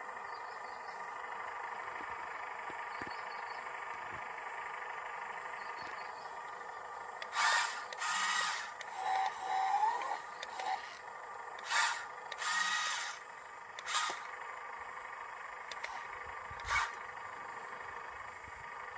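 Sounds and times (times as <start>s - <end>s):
small electric motors whining: 5.6s - 18.9s
noisy bursts: 7.2s - 11.0s, 11.6s - 14.4s, 15.7s - 17.2s.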